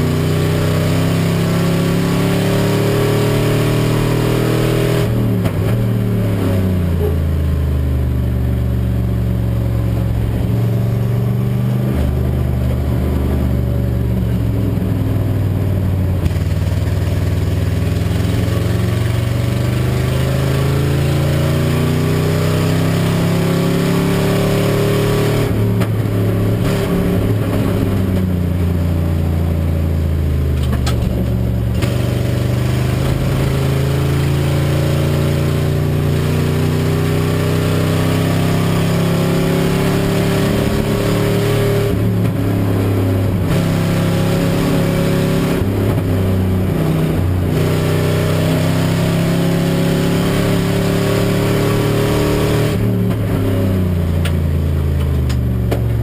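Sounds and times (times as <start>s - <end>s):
race car engine accelerating: 0.0s - 15.4s, 16.1s - 56.0s.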